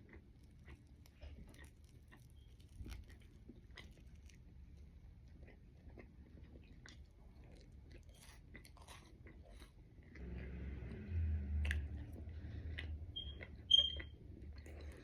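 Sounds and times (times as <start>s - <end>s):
person chewing crunchy food: 0.0s - 10.8s, 11.5s - 15.0s
low rumble: 10.2s - 15.0s.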